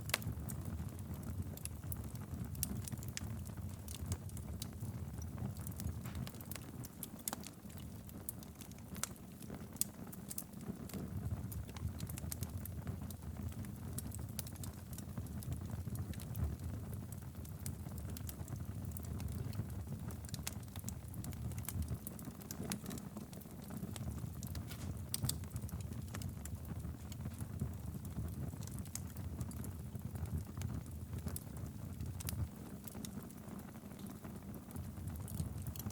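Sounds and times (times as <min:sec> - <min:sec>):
wood fire crackling: 0:00.0 - 0:35.9.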